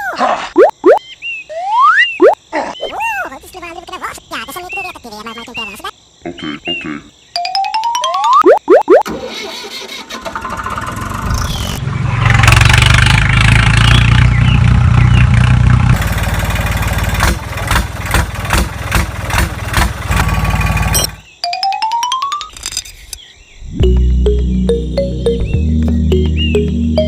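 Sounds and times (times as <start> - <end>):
engine starting and sputtering: 9.0 - 14.6, 15.9 - 21.2.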